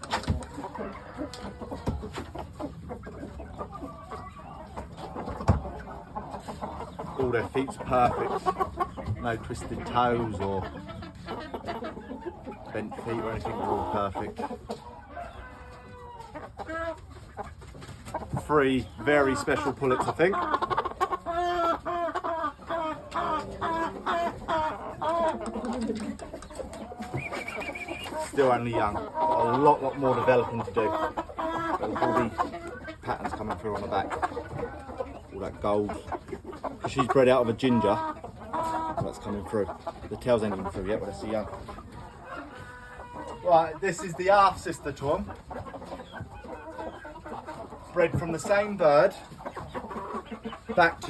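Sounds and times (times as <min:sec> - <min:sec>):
chickens clucking: 0:00.0 - 0:51.0
high steady chicken call: 0:20.4 - 0:32.7.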